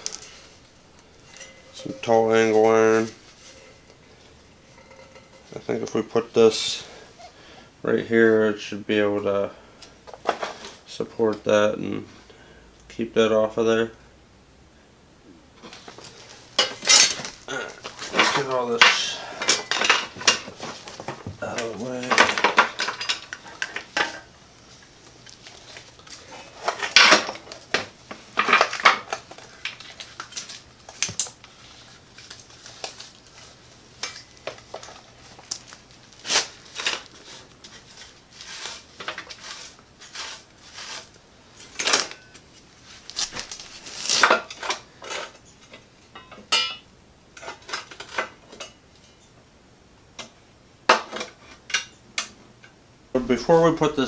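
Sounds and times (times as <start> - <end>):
metal tools clinking and clanking: 1.2 - 3.9, 4.6 - 6.9, 16.6 - 20.8, 21.5 - 24.3, 26.3 - 27.6, 44.2 - 46.8.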